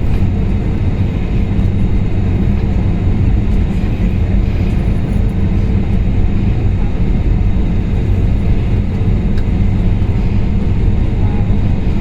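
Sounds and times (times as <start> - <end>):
vehicle rumble inside cabin: 0.0 - 12.0.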